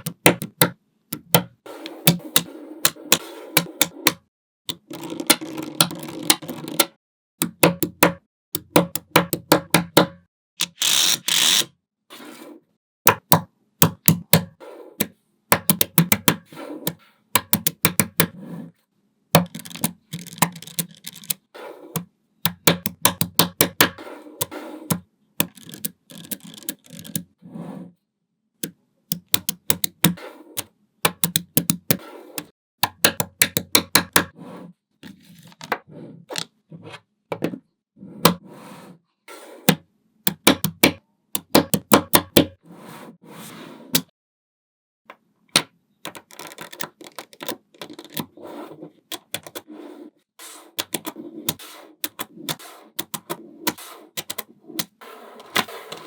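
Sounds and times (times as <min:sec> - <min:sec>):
magnetic balls clicking together: 0:15.5 - 0:16.4, 0:19.4 - 0:21.5, 0:22.5 - 0:24.0, 0:24.9 - 0:27.3, 0:29.1 - 0:34.2.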